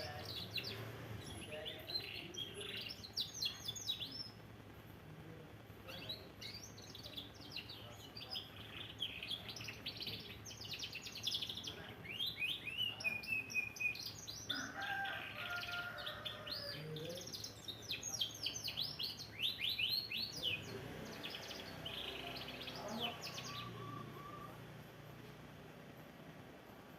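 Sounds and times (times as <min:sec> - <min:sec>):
canary singing trills: 0:00.0 - 0:04.5, 0:05.8 - 0:25.1.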